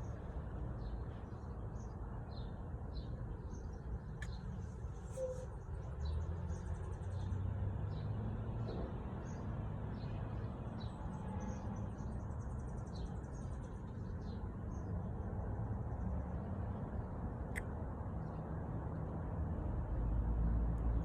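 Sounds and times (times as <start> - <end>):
small birds chirping: 0.8 - 14.9.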